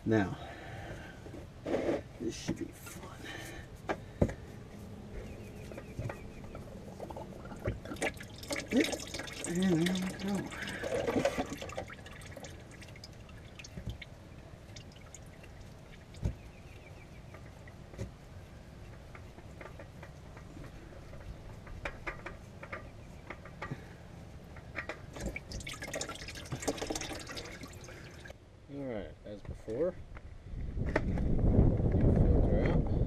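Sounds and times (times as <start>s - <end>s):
oil dripping into pan: 7.0s - 14.1s, 14.7s - 16.2s, 25.2s - 28.3s.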